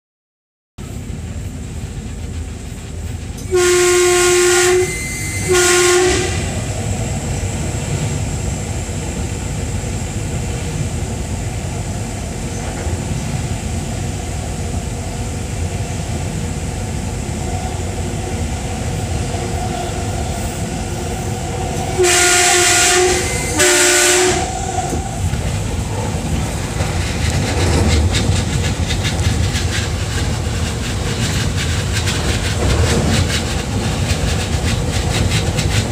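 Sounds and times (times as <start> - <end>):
train wheels running on rails: 0.8 - 35.9
train horn: 3.4 - 6.6, 21.8 - 25.2.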